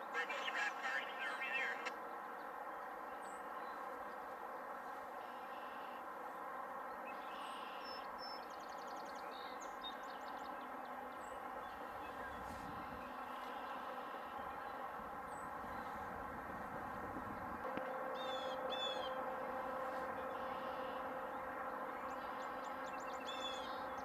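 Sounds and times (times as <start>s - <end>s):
distant train rumble: 10.5s - 24.0s
bird trill: 18.1s - 19.2s, 22.0s - 24.0s.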